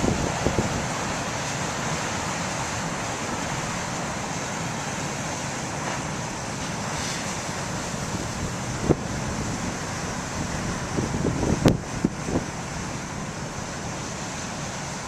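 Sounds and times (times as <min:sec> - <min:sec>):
wind on microphone: 0:00.0 - 0:01.2, 0:07.8 - 0:14.0
surf breaking ashore: 0:00.0 - 0:15.0.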